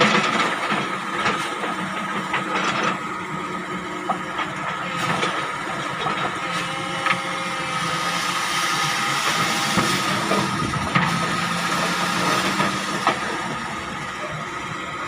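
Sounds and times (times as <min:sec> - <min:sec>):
pile-driving machinery engine drone: 0:00.0 - 0:15.0.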